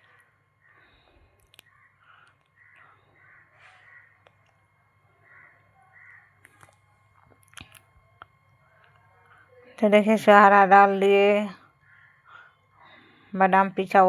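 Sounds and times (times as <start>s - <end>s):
faint short bird calls: 0.0s - 4.3s, 5.2s - 6.6s, 11.8s - 12.6s.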